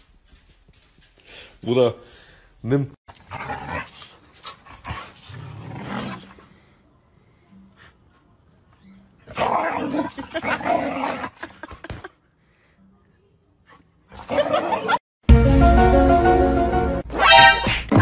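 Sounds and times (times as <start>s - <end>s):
dogs barking and growling: 9.2s - 11.9s, 14.1s - 15.0s
music: 15.2s - 18.0s.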